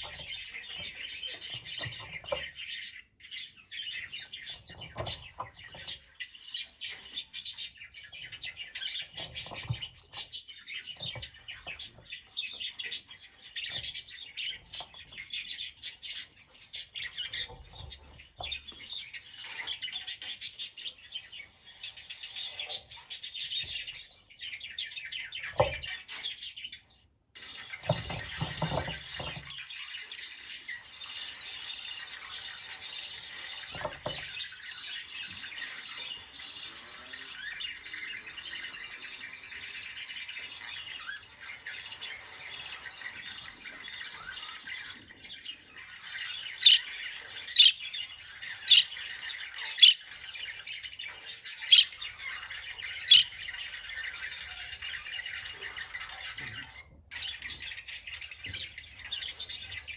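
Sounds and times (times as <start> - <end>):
budgerigar chattering and warbling: 46.5 - 49.0, 49.6 - 50.1, 51.5 - 52.1, 52.9 - 53.4
loud sharp bird calls: 46.5 - 49.0, 49.7 - 50.1, 51.6 - 52.0, 52.9 - 53.6.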